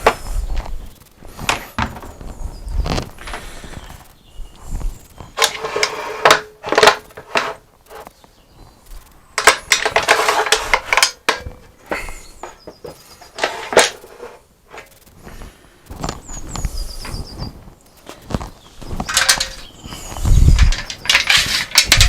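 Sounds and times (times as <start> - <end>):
metal clamps clattering: 5.4 - 8.1, 9.4 - 14.9, 19.0 - 19.7, 20.5 - 22.0.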